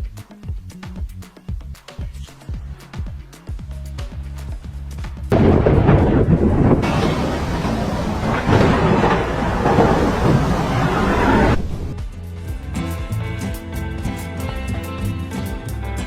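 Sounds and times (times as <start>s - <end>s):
background music: 0.0s - 6.6s, 11.6s - 16.0s
rain: 5.3s - 12.0s
rumbling thunder: 5.3s - 12.0s
thunder crack: 5.3s - 12.0s.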